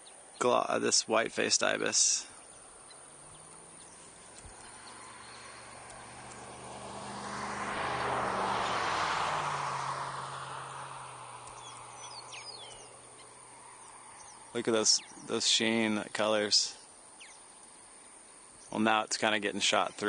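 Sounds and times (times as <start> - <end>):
faint bird calls: 1.6 - 6.6, 10.2 - 18.8
vehicle driving past: 2.6 - 15.2.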